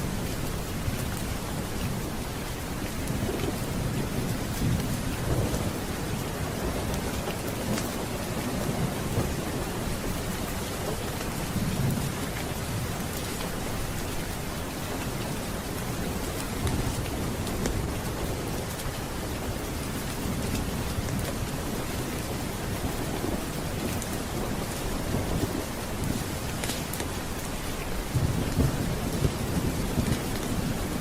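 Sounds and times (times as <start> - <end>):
steady rain: 0.0 - 31.0
thunder rumbling: 3.0 - 13.2, 20.3 - 31.0.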